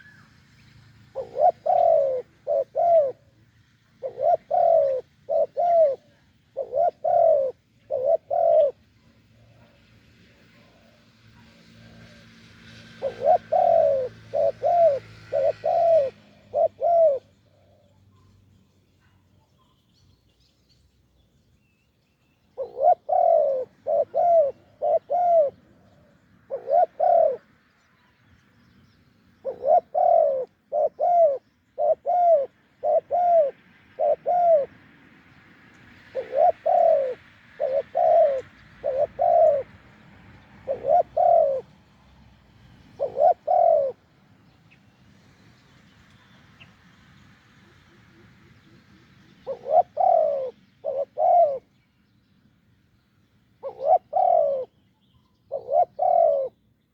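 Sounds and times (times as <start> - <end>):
dove cooing: 1.0 - 18.4, 22.5 - 27.6, 29.4 - 34.8, 35.9 - 44.3, 47.7 - 51.8, 53.6 - 54.8, 55.4 - 56.6.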